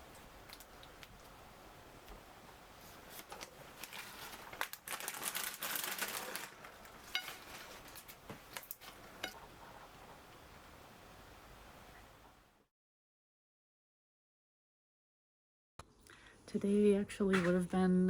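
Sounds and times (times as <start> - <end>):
rustling and crinkling: 0.0 - 1.4, 2.0 - 10.2.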